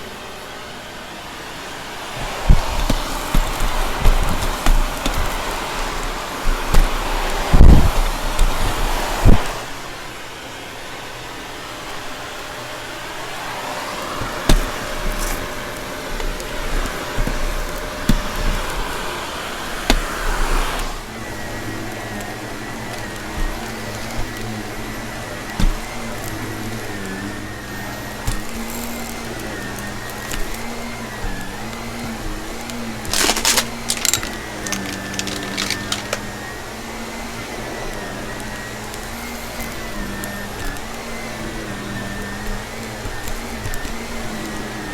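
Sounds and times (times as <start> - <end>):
vacuum cleaner running: 0.0 - 44.9
debris rattling in vacuum: 1.9 - 9.7, 13.2 - 44.9
debris clicking into vacuum: 28.2 - 36.4.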